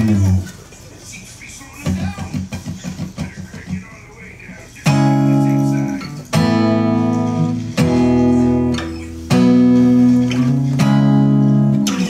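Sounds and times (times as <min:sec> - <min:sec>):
guitar chords strummed: 0:00.0 - 0:00.5, 0:04.8 - 0:12.0.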